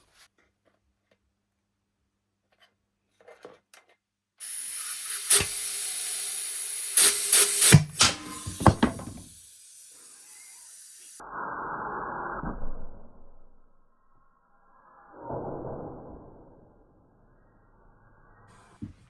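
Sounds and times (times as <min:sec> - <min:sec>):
air blow gun hissing: 0:04.4 - 0:11.2
knocks and clatters: 0:08.0 - 0:09.4.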